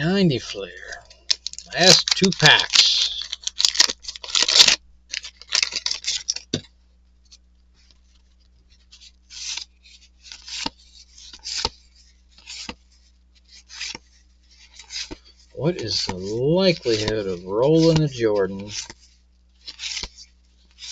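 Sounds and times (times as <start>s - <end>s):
wrapper and cards rustling: 0.0s - 6.6s, 7.8s - 20.9s
cards swiping: 15.8s - 19.0s, 19.6s - 20.2s.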